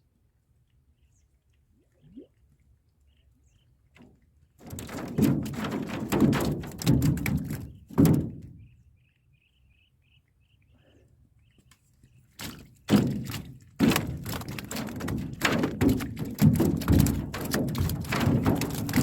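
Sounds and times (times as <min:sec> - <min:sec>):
heavy knocks on wooden boat: 0:04.7 - 0:08.6, 0:12.4 - 0:19.0.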